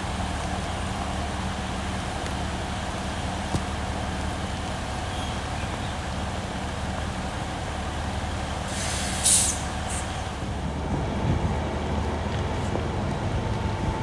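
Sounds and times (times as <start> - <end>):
loud hiss of released air: 8.7 - 10.1.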